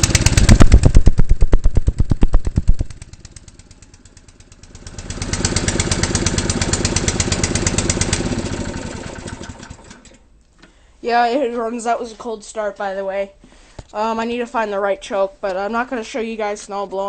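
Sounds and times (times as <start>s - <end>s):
snowblower engine running: 0.0s - 10.2s.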